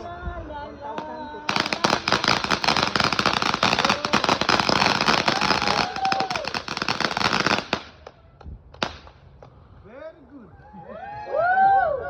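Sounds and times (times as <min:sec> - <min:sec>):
firework crackling pops: 0:01.0 - 0:09.6.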